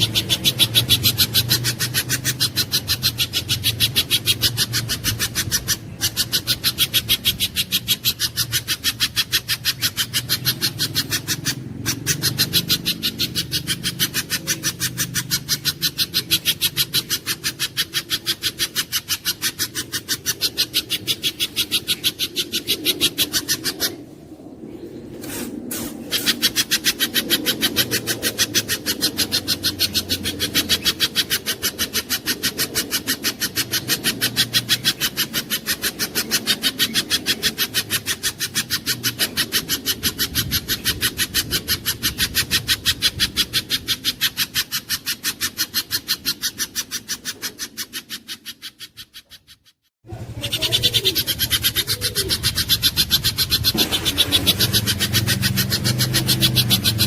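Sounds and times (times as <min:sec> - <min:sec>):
bird calling sharp high notes: 0:50.3 - 0:57.0.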